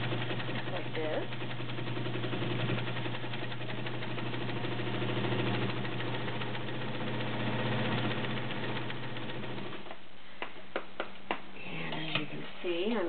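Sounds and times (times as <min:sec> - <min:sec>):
sewing machine motor humming: 0:00.0 - 0:09.9.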